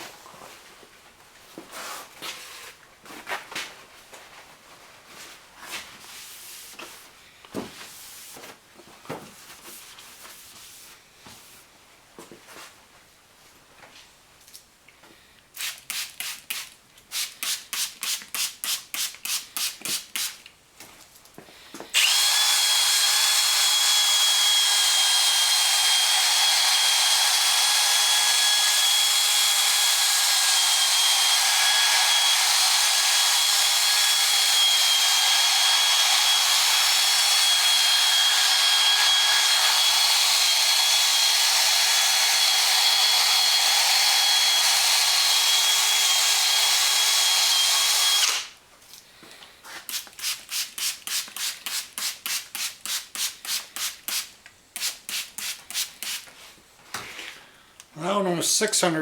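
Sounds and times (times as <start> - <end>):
power drill whining: 21.9 - 48.6.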